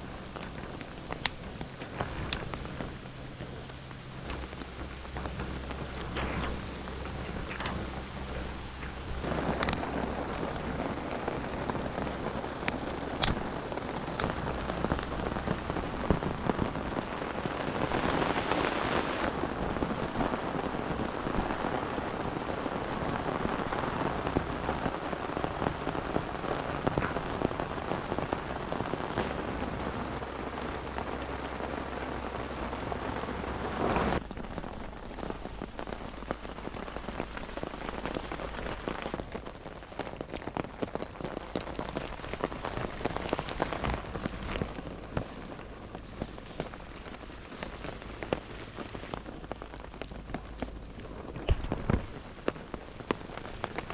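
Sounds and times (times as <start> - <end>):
low rumble: 0.0 - 53.9
steady rain hiss: 0.0 - 53.9
sharp clicks: 8.8 - 10.4, 12.6 - 13.5.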